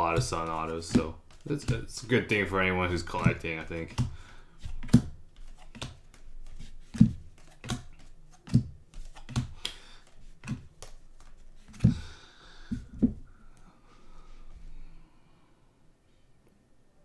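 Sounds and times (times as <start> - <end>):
cards clicking and tapping on table: 0.0 - 12.1.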